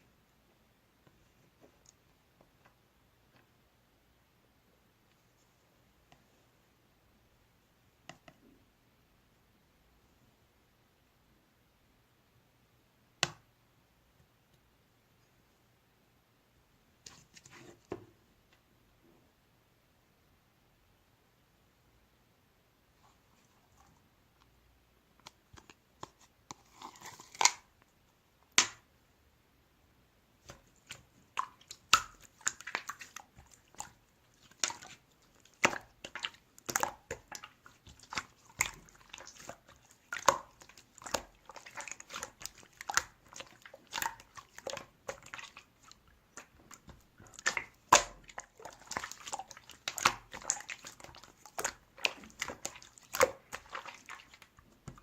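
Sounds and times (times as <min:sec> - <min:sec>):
slime squishing with wet clicks: 0:23.7 - 0:28.9, 0:30.4 - 0:55.0.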